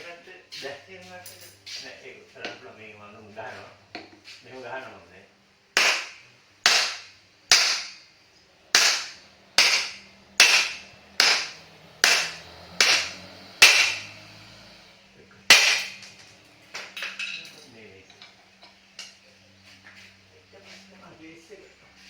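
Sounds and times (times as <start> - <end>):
hammer blows on metal: 8.7 - 14.5.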